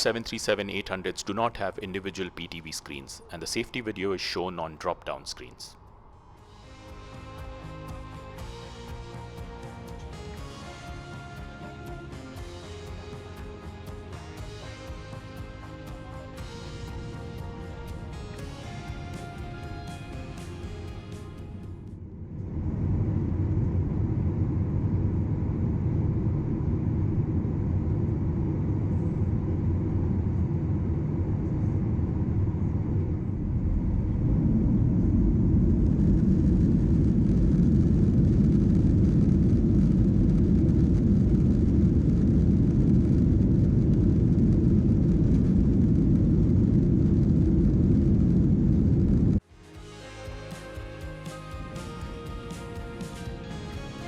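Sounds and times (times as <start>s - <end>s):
jet engines roaring in cabin: 7.8s - 49.5s.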